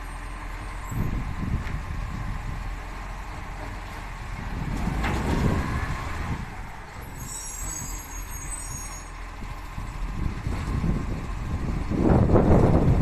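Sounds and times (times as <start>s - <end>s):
high squeal: 7.0s - 9.2s
garbage truck engine running: 9.1s - 13.0s.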